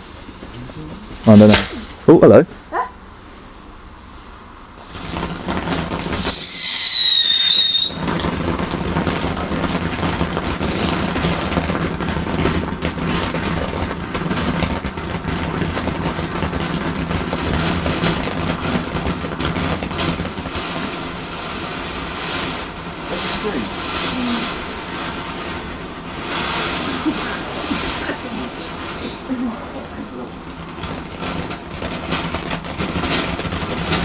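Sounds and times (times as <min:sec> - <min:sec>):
firework hissing: 0:00.0 - 0:34.0
firework shrill whistle: 0:01.4 - 0:02.0, 0:04.9 - 0:08.5.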